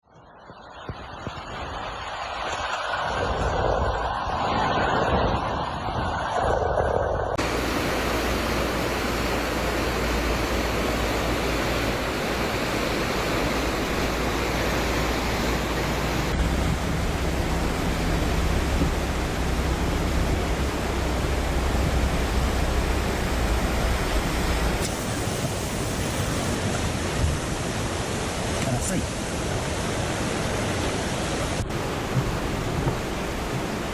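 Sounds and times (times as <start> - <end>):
rushing flood water: 7.4 - 33.9.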